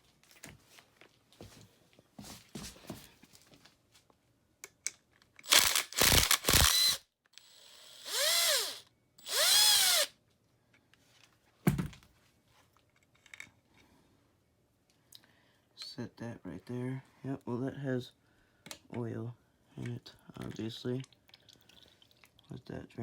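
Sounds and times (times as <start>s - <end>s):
cordless drill whirring: 5.4s - 10.1s.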